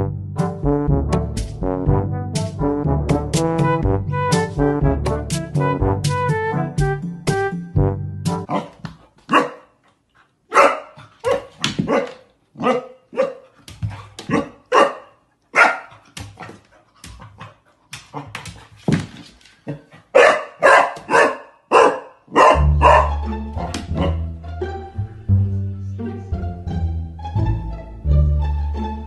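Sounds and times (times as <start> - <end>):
puppy barking: 8.5 - 9.7, 10.5 - 13.5, 14.3 - 16.0, 20.1 - 23.2, 23.9 - 24.2.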